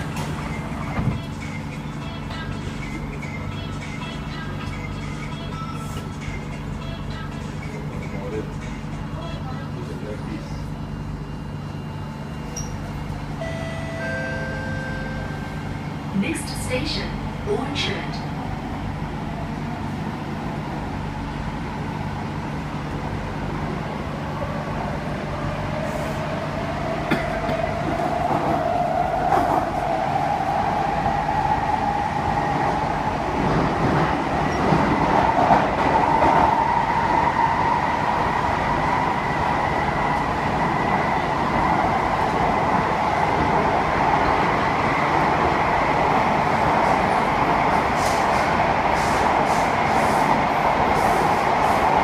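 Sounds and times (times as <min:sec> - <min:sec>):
wheels rumbling on rail: 0:00.0 - 0:52.0.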